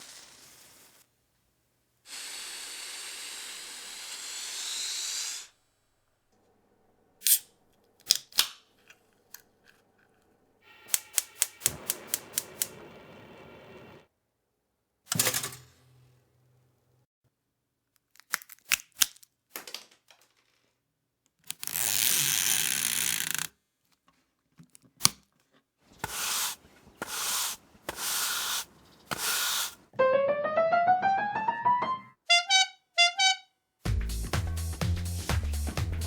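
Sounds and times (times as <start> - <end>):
hissing noise bursts: 10.6 - 14.1, 26.0 - 29.8
rising tone: 30.0 - 32.2
music with heavy beat: 33.9 - 36.0.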